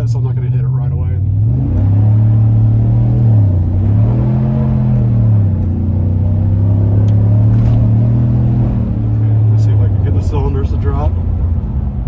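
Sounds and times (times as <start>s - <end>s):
truck engine accelerating: 0.0s - 12.0s.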